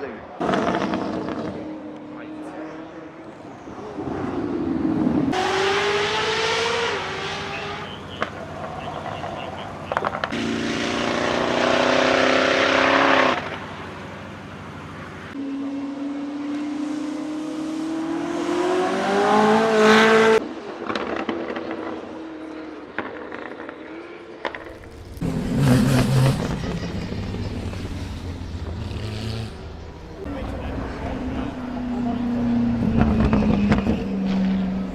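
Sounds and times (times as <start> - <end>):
car engine accelerating: 24.6 - 34.9.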